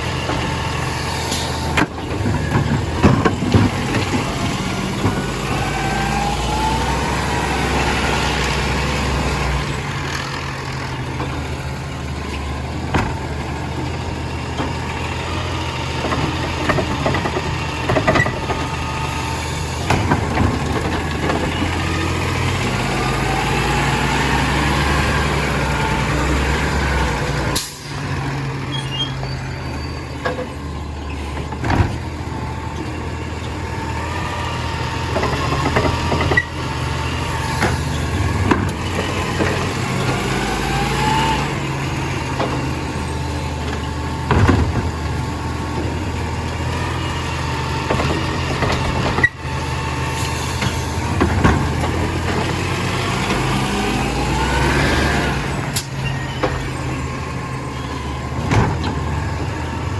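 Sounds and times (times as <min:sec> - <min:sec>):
machinery knocks and clanks: 0:00.0 - 0:05.9, 0:12.2 - 0:15.2, 0:15.8 - 0:18.9, 0:19.6 - 0:23.0, 0:30.2 - 0:33.6, 0:35.0 - 0:43.0, 0:43.6 - 0:47.0, 0:47.8 - 0:49.6, 0:50.2 - 0:54.8
truck diesel engine running: 0:00.0 - 0:59.9.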